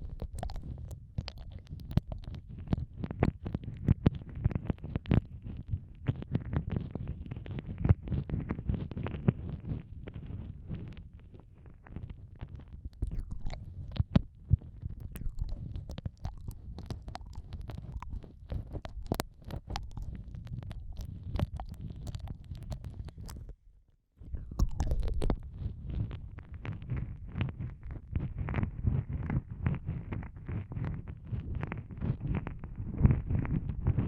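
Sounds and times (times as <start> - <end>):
wet mouth sounds: 0.0 - 5.4, 12.6 - 23.6, 24.3 - 34.0.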